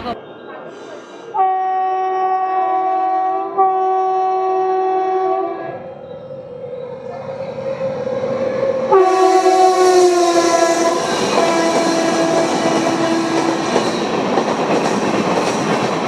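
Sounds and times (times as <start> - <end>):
train horn blasting: 1.4 - 5.7, 8.9 - 13.6
express train rumbling past: 4.5 - 16.0.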